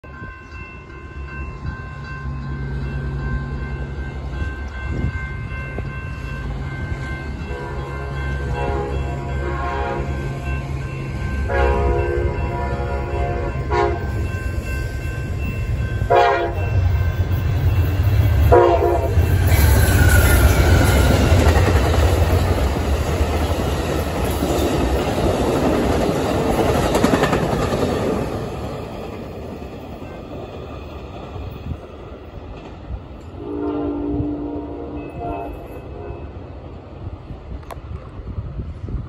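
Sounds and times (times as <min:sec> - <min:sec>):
train horn blasts: 0:07.4 - 0:10.5, 0:11.3 - 0:14.3, 0:16.0 - 0:16.9, 0:18.4 - 0:19.4, 0:33.3 - 0:36.4
train cars clattering on rails: 0:11.1 - 0:33.4.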